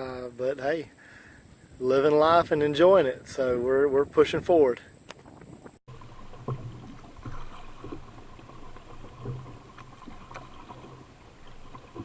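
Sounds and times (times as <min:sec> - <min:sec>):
low steady water noise: 0:00.0 - 0:12.0
paddle strokes splashing: 0:05.2 - 0:12.0.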